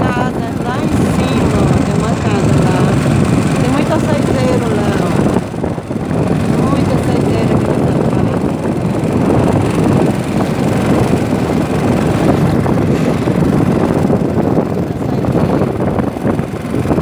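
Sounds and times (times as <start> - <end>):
motorboat engine rumble: 0.0 - 17.0
wind buffeting microphone: 0.0 - 17.0.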